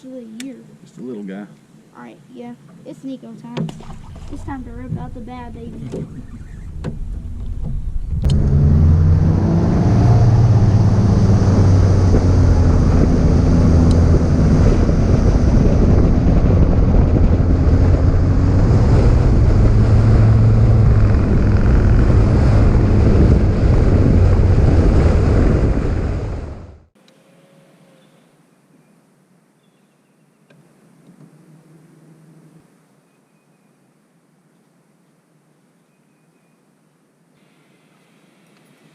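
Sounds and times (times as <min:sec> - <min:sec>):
outboard motor running: 0:03.6 - 0:09.2, 0:19.1 - 0:24.4
wind buffeting microphone: 0:03.8 - 0:26.9.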